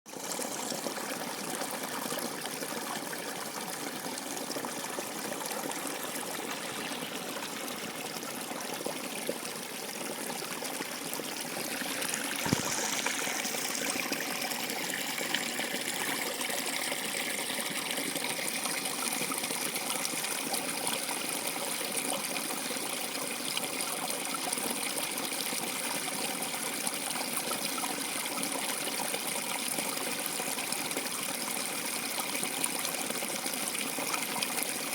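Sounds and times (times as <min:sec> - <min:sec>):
water trickling: 0:00.1 - 0:21.6.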